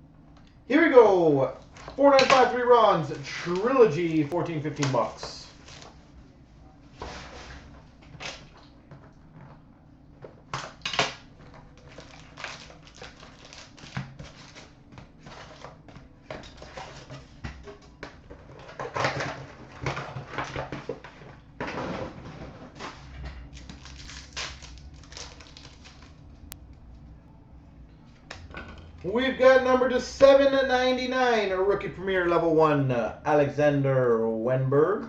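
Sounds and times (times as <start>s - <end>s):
card packs crinkling and rustling: 1.7s - 6.0s, 11.4s - 17.4s, 18.2s - 26.3s.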